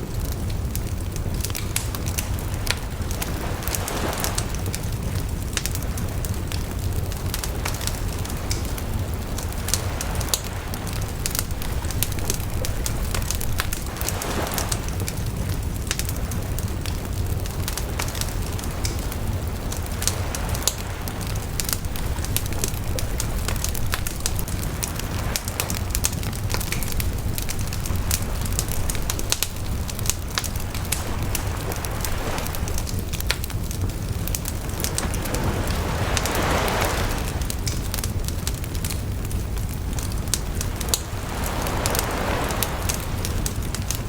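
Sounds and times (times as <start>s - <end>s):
low fire rumble: 0.0s - 44.0s
bonfire pops and snaps: 0.1s - 44.0s.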